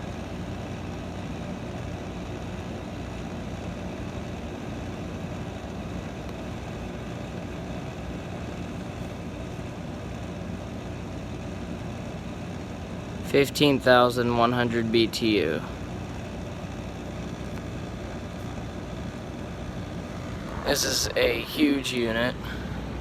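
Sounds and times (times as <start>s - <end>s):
air conditioner compressor hum: 0.0s - 23.0s
fan air rushing: 0.0s - 23.0s.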